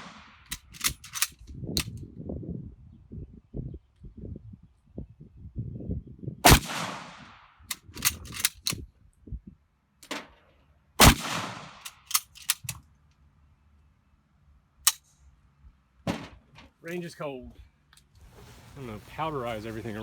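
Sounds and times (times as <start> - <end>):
rifle shots with echo: 0.0 - 1.0, 6.4 - 7.4, 11.0 - 12.2
rifle bolt metallic clicks: 0.0 - 2.0, 7.7 - 8.8, 11.2 - 12.9, 14.8 - 15.2.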